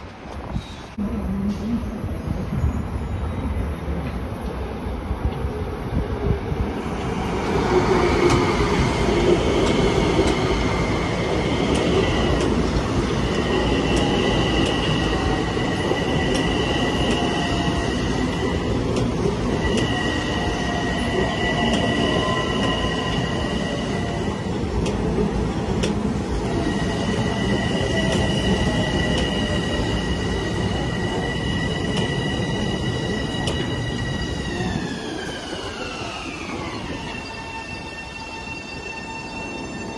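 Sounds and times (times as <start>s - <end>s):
train rumbling on rails: 0.0s - 39.9s
train wheels squealing: 13.1s - 24.6s, 26.4s - 39.9s.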